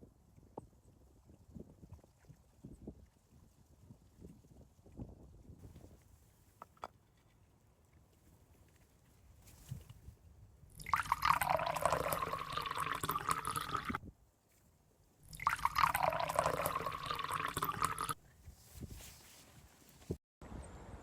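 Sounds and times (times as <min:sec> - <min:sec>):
water pouring into container: 0:10.7 - 0:14.0, 0:15.3 - 0:18.2.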